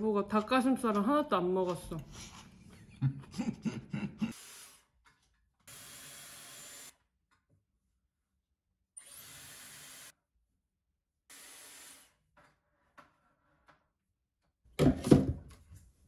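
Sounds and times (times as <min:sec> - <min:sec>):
person's voice: 0:00.0 - 0:02.1.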